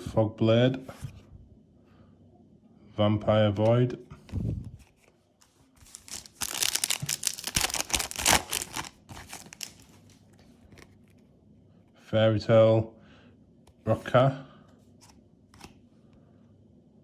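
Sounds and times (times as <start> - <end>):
foil wrapper crinkling and tearing: 5.8 - 10.1
faint clicks of cards handled: 14.7 - 15.8.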